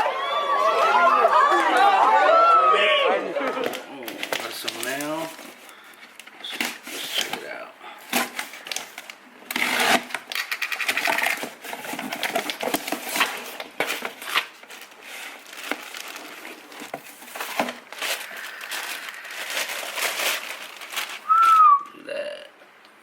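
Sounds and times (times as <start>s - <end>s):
packaging crinkling and tearing: 3.6s - 7.5s, 8.1s - 21.7s.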